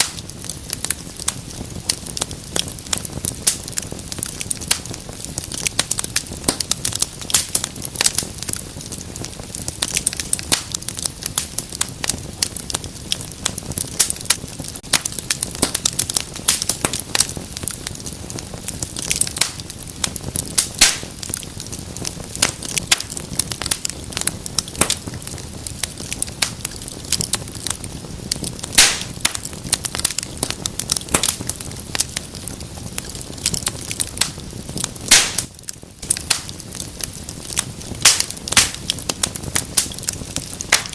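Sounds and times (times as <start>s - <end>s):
fire popping and snapping: 0.0s - 40.9s
wood fire crackling: 0.0s - 40.9s.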